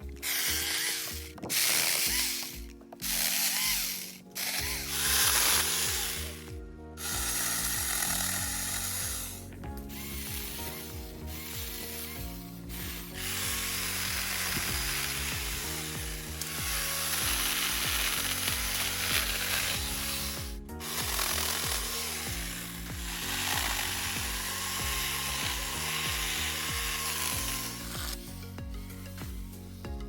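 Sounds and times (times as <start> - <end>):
background music with sustained chords: 0.0 - 30.0
mini chainsaw cutting branches: 0.0 - 30.0.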